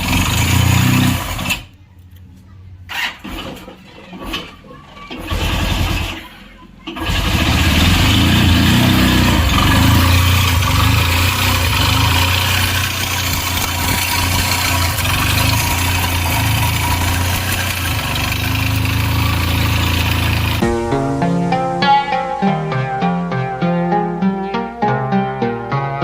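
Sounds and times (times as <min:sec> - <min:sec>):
motorcycle engine idling: 0:07.0 - 0:20.7.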